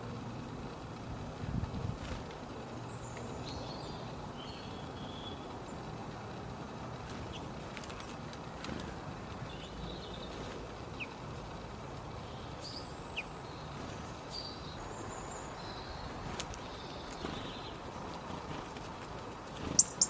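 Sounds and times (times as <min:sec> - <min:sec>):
low background noise: 0:00.0 - 0:20.0
faint bird chirps: 0:02.9 - 0:05.8, 0:19.7 - 0:20.0.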